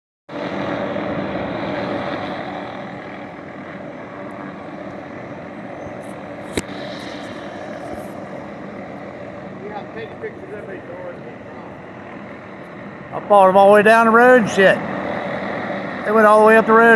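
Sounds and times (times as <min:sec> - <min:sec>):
helicopter drone overhead: 0:00.3 - 0:16.9
sharp click: 0:06.0 - 0:06.7.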